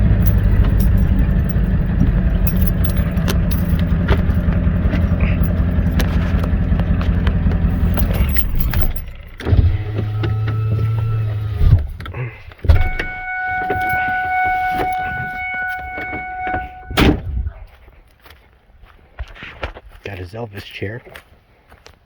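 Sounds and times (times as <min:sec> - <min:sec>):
small vehicle motor running: 0:00.0 - 0:17.0
high motor whine: 0:00.0 - 0:17.6.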